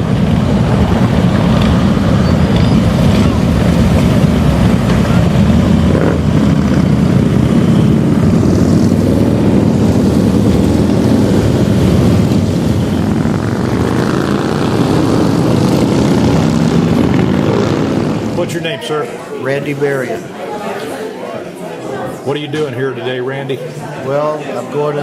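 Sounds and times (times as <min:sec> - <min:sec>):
motorcycle engines running: 0:00.0 - 0:18.8.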